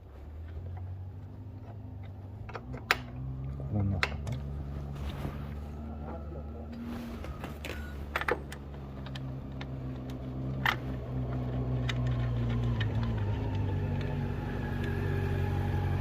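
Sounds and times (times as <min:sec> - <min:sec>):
hand tools clicking and tapping: 0:01.5 - 0:04.5.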